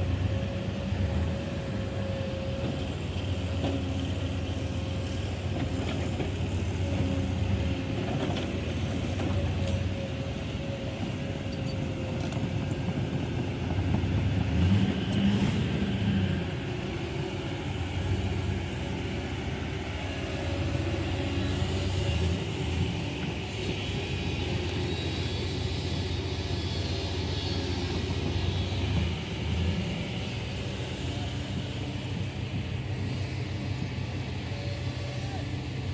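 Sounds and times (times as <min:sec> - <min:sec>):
heavy diesel engine under load: 0:00.0 - 0:35.9.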